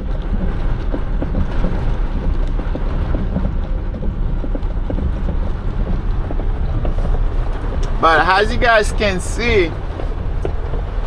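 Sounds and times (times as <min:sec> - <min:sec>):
heavy rain on truck cab: 0:00.0 - 0:11.0
low rumble: 0:00.0 - 0:11.0.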